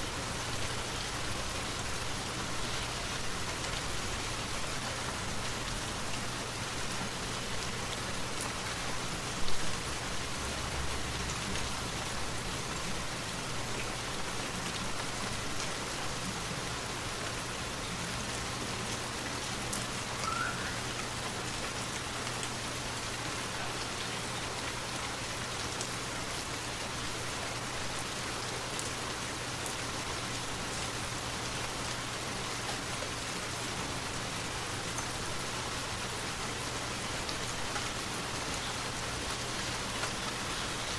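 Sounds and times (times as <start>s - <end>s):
faint chirp: 20.2s - 20.9s
waterfall rushing: 20.2s - 21.2s.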